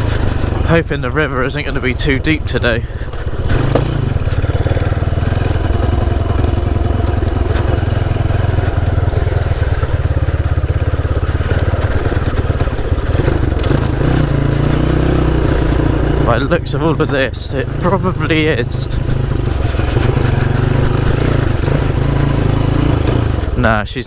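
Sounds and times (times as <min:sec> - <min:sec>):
small motorcycle engine running: 0:00.0 - 0:24.0.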